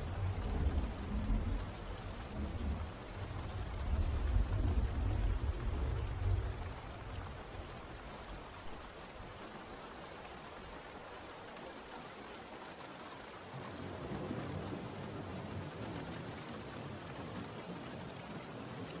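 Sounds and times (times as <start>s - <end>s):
deep low rumble: 0.0s - 7.6s
steady rain falling: 0.0s - 19.0s.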